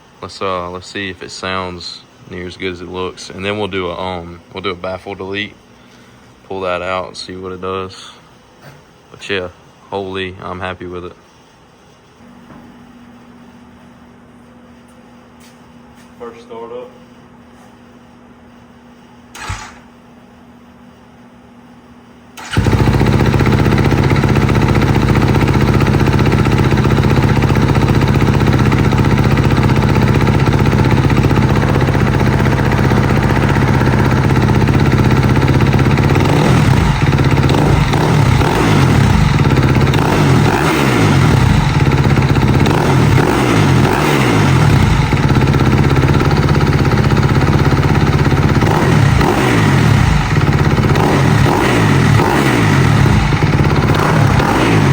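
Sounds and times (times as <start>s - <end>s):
dirt bike engine idling: 22.4s - 54.9s
engine revving: 22.4s - 54.9s.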